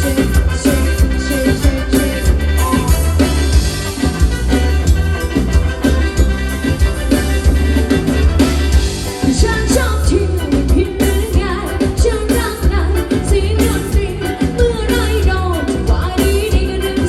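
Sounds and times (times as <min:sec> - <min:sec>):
person singing: 0:00.0 - 0:03.3
bass and drum beat: 0:00.0 - 0:17.0.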